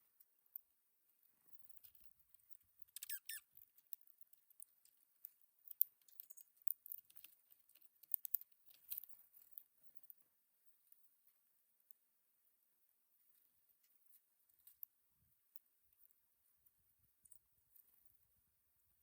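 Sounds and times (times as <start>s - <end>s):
birds pecking seed: 1.5s - 10.2s
short high bird chirp: 3.0s - 3.4s.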